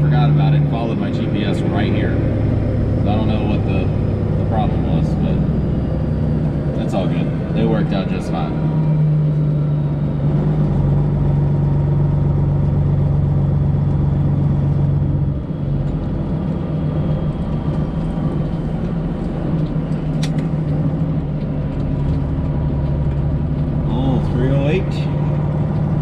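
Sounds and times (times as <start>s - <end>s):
truck diesel engine running: 0.0s - 26.0s
sharp click: 19.6s - 20.5s.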